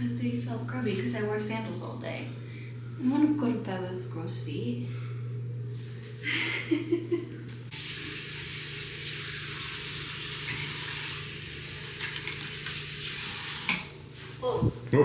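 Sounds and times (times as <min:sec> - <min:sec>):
water running from tap: 0:07.7 - 0:14.0.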